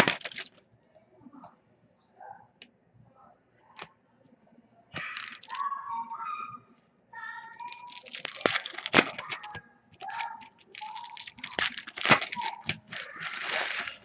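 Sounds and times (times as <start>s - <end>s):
wrappers crackling and crinkling: 0.0s - 0.6s, 5.0s - 5.7s, 7.6s - 14.0s.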